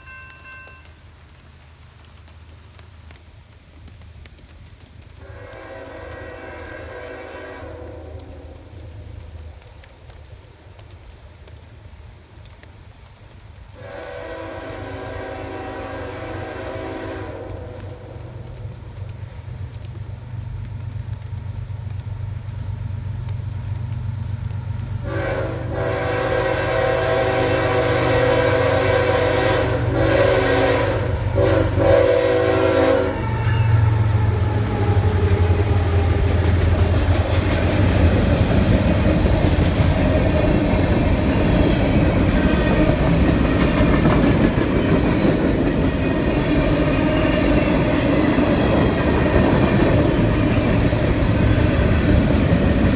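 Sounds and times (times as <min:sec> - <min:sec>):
multi-chime train horn: 0:00.0 - 0:01.1, 0:13.8 - 0:17.8, 0:25.1 - 0:36.4
train wheels rolling on rails: 0:00.0 - 0:52.9
locomotive engine rumble: 0:13.9 - 0:52.9.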